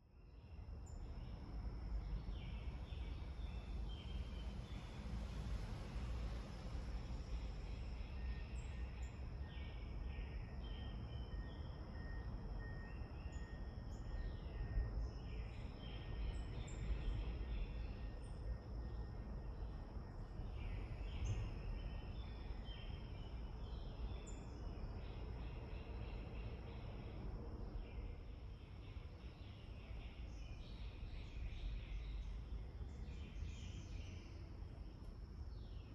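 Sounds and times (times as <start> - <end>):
wind rumble on microphone: 13.4 - 28.2.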